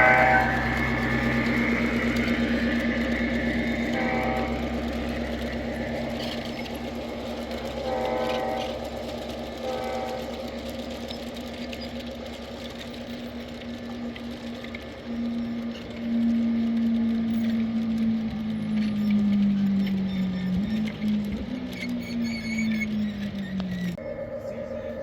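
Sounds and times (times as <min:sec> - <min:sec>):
short pitched notes: 0:00.0 - 0:05.2
model train motor whirring: 0:00.0 - 0:24.0.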